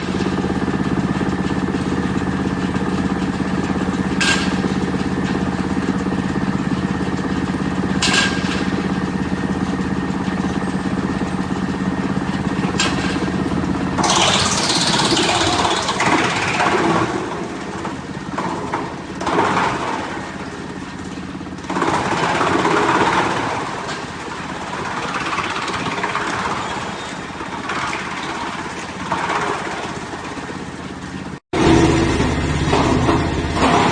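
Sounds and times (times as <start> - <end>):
wood chipper droning: 0.0 - 33.9.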